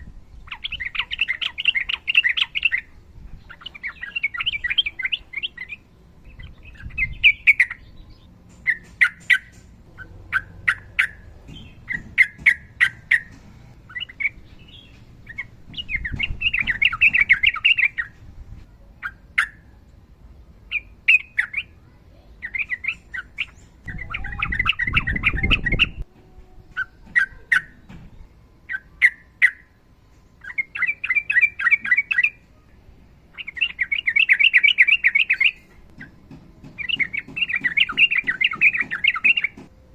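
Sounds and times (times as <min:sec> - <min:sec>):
bird chattering song: 0:00.0 - 0:18.2, 0:19.0 - 0:19.8, 0:20.7 - 0:26.0, 0:26.7 - 0:29.7, 0:30.4 - 0:32.7, 0:33.3 - 0:39.7
sharp bird clicks: 0:33.4 - 0:39.7.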